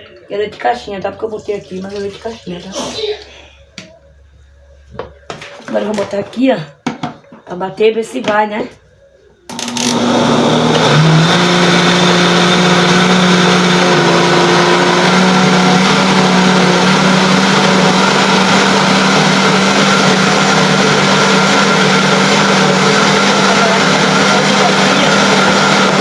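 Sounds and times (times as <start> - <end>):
electric blender running: 9.5 - 26.0.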